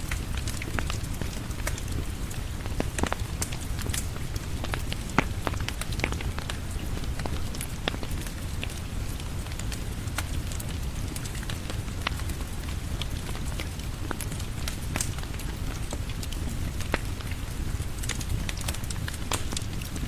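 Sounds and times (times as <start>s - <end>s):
steady rain falling: 0.0s - 20.0s
wood fire crackling and popping: 0.0s - 20.0s.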